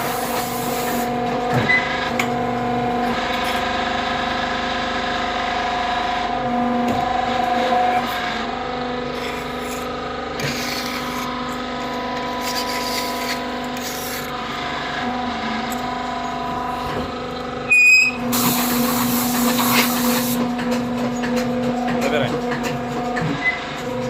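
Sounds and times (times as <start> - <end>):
press machine humming: 0.0 - 24.0
loud high-pitched tone: 17.6 - 18.8.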